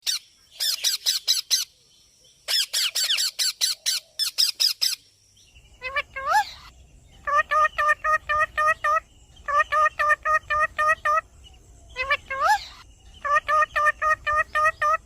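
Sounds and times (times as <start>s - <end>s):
parakeet chick calling: 5.8s - 11.3s, 11.9s - 15.0s.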